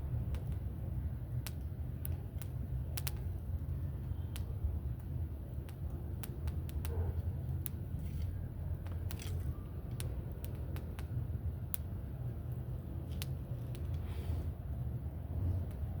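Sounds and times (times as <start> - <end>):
bonfire crackling: 0.0 - 16.0.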